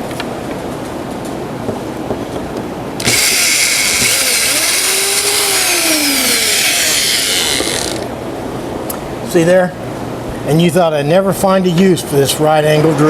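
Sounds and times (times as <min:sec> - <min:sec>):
power drill drilling into wood: 0:03.0 - 0:08.1.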